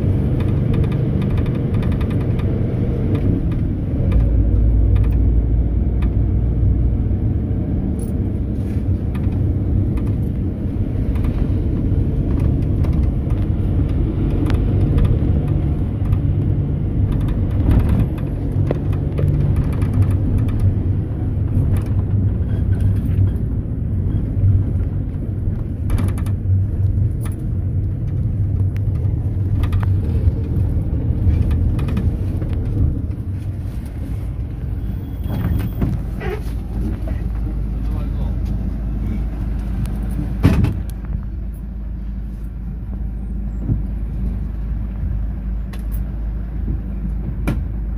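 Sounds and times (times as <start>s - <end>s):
vehicle engine and road rumble: 0.0s - 47.9s.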